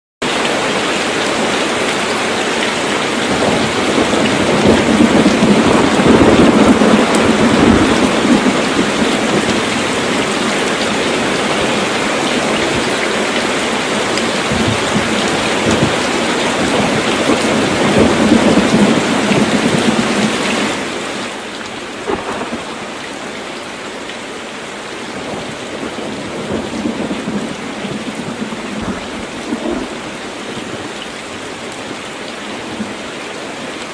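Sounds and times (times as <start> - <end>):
heavy rain on a tin roof: 0.2 - 33.9
thunder rumbling: 0.7 - 21.0, 22.0 - 23.4, 25.1 - 31.0.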